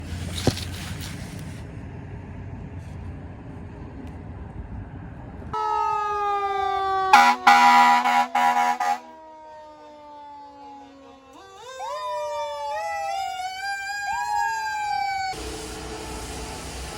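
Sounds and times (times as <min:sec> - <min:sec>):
fire engine siren: 0:05.5 - 0:16.0
air horn blasts: 0:07.1 - 0:09.2.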